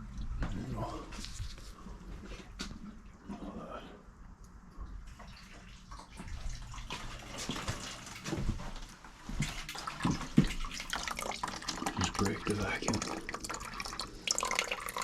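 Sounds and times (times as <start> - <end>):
water splashing from a pipe: 5.1 - 8.7, 9.3 - 15.0.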